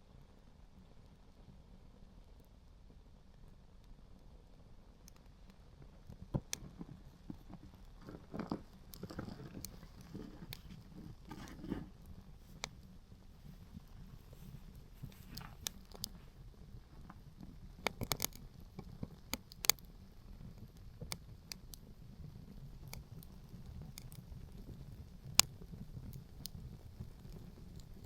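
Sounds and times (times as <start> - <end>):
low rumble of wind: 0.0 - 28.0
wood fire crackling: 2.0 - 28.0.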